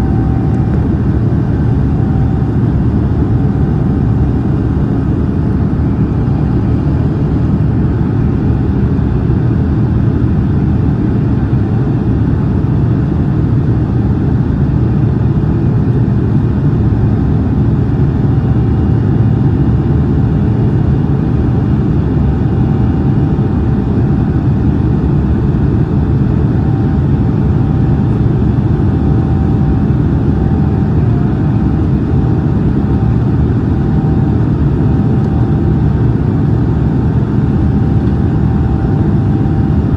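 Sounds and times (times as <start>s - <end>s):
faint steady whine: 0.0s - 13.9s, 14.8s - 39.9s
aircraft cabin engine rumble: 0.0s - 39.9s.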